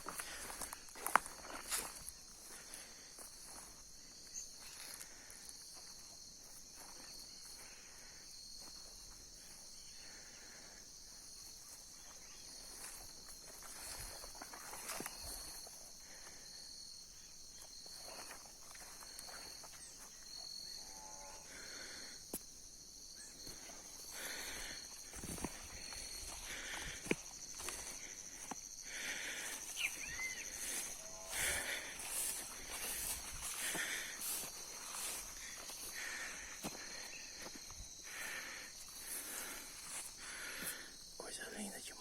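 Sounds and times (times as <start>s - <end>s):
cricket chirping: 0.0s - 42.0s
insects chorus: 0.0s - 42.0s
footsteps in dry leaves: 30.4s - 36.9s.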